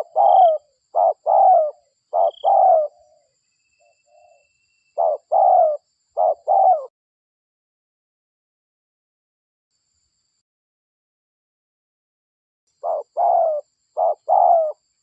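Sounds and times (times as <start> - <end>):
dove cooing: 0.0 - 3.3, 4.0 - 6.9, 12.8 - 14.8.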